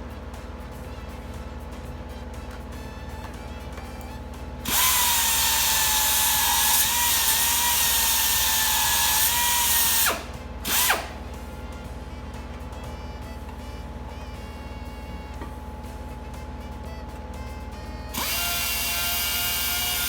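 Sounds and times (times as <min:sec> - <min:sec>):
electric power tool whining: 0:03.2 - 0:11.5, 0:16.7 - 0:20.0.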